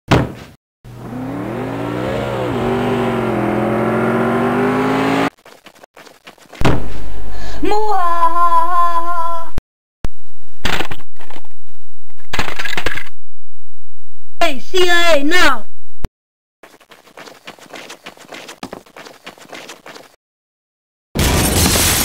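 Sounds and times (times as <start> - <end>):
car engine revving: 0.9 - 5.4.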